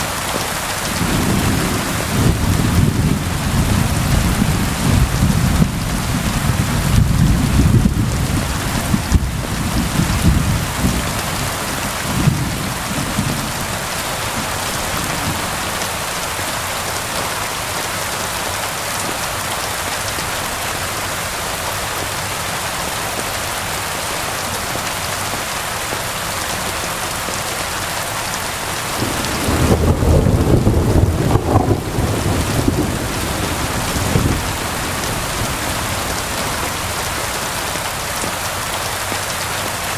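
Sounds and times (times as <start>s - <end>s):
heavy rain: 0.0s - 39.9s
thunder rumbling: 1.0s - 15.8s, 28.9s - 37.4s.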